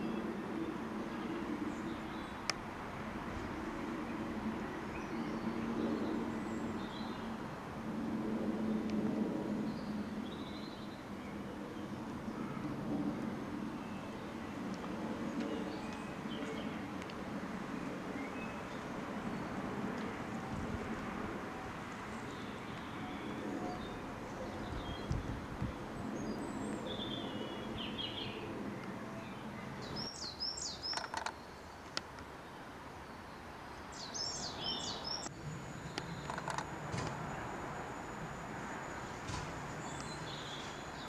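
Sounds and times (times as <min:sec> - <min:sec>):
outdoor background noise: 0:00.0 - 0:41.0
small birds chirping: 0:22.0 - 0:32.0, 0:33.0 - 0:36.7, 0:39.0 - 0:41.0.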